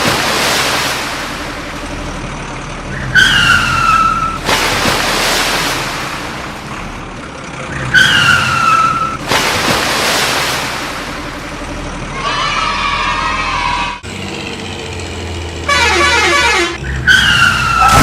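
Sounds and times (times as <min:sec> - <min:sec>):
low engine hum: 0:00.0 - 0:18.0
cartoon tyre squeal: 0:03.0 - 0:04.4, 0:07.9 - 0:09.2, 0:12.2 - 0:14.0, 0:16.8 - 0:18.0.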